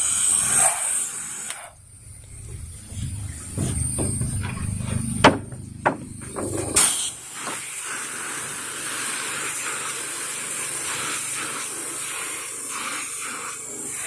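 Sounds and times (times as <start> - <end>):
low steady hum: 1.8 - 7.3
pressure washer spray hissing: 6.4 - 14.0.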